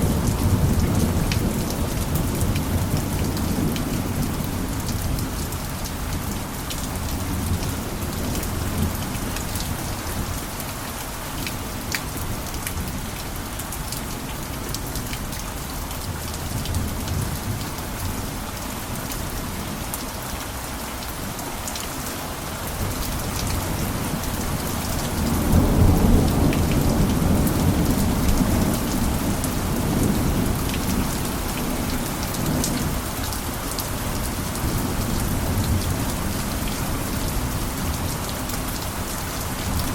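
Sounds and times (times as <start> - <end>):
low rumble of thunder: 0.0 - 10.4, 22.7 - 33.3
rain falling on a roof: 0.0 - 39.9.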